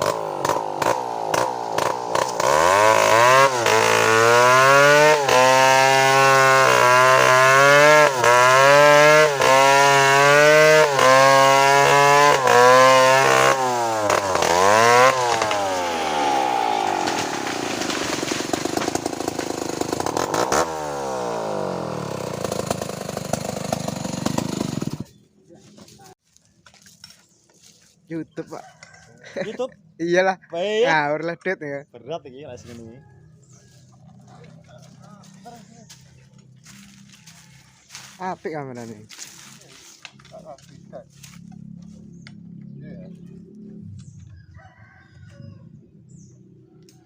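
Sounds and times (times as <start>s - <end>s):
chainsaw cutting wood: 0.0s - 25.2s.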